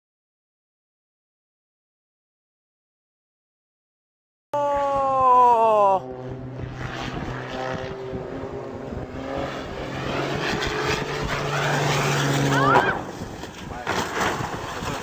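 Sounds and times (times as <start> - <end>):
aircraft engine hum: 4.6 - 15.0
falling engine tone: 4.6 - 15.0.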